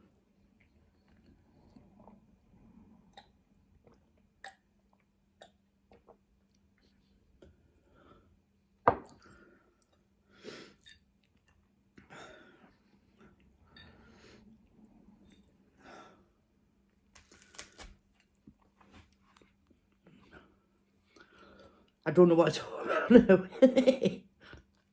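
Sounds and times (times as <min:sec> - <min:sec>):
person chewing food: 0:03.0 - 0:07.8, 0:09.1 - 0:12.0, 0:17.0 - 0:22.0.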